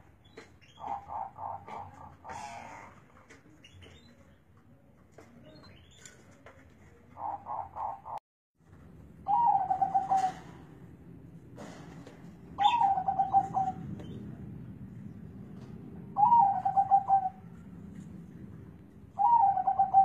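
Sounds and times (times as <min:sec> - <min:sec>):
dove cooing: 0:00.8 - 0:03.0, 0:07.1 - 0:08.2, 0:09.3 - 0:10.7, 0:12.6 - 0:14.2, 0:16.2 - 0:17.7, 0:19.2 - 0:20.0.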